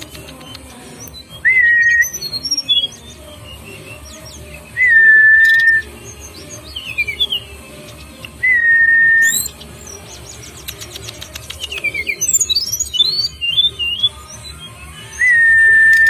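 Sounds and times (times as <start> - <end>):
ticking clicks: 0.0 - 1.3, 7.8 - 8.5, 9.4 - 13.2
falling bird chirps: 0.0 - 16.0
songbird whistling: 0.0 - 16.0.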